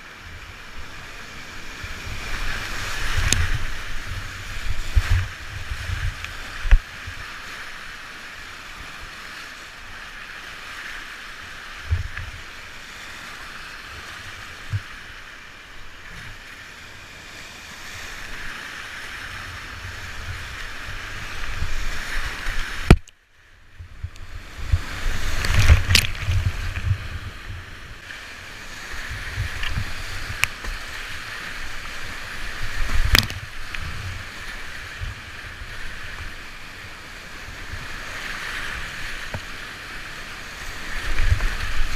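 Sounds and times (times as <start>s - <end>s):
wind buffeting microphone: 1.8s - 7.2s, 19.4s - 23.0s, 23.8s - 28.0s, 28.7s - 31.2s
sharp click: 22.9s - 23.2s.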